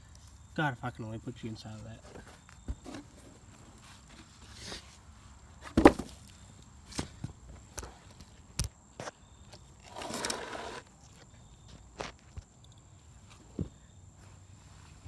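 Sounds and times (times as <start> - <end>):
scraping rustle: 9.8 - 10.9.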